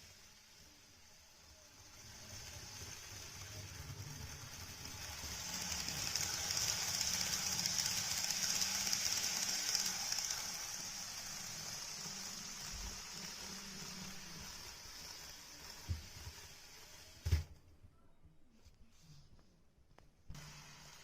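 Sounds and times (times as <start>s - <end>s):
train wheels rushing on rails: 1.5s - 17.0s.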